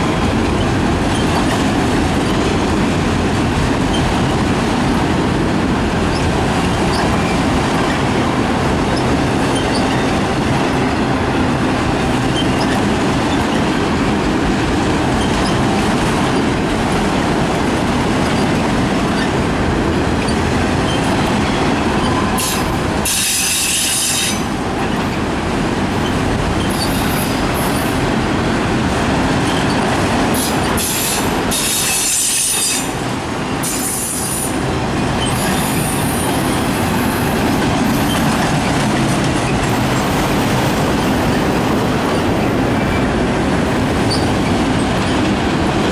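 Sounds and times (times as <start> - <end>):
train wheel squeal: 0.0 - 2.8, 6.1 - 8.2, 8.9 - 11.0, 12.0 - 14.0, 15.2 - 16.7, 18.2 - 19.4, 20.2 - 25.2, 26.0 - 28.1, 29.4 - 45.8
freight train rumbling on rails: 0.0 - 45.9.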